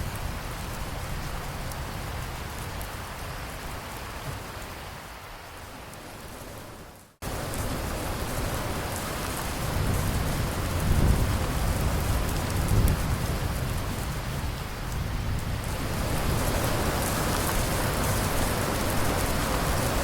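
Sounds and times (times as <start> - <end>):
steady rain falling: 0.0 - 20.0
low rumble of thunder: 9.4 - 20.0.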